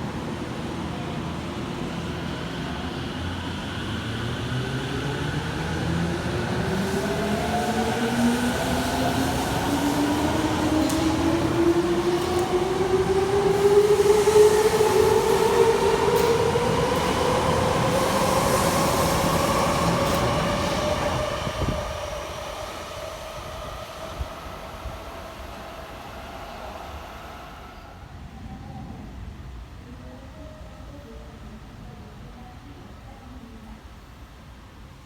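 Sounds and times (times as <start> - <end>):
subway train motors whining: 0.0 - 35.0
train wheels running noise: 3.2 - 28.0.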